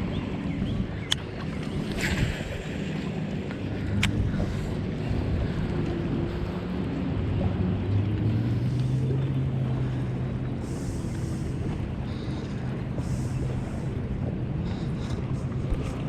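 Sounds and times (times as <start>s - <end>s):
boat engine humming: 0.0s - 16.0s
wind on microphone: 0.0s - 16.0s.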